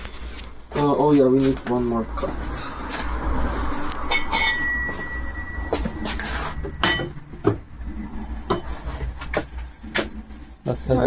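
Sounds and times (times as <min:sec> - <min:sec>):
scrap metal clinking: 0:04.1 - 0:07.4.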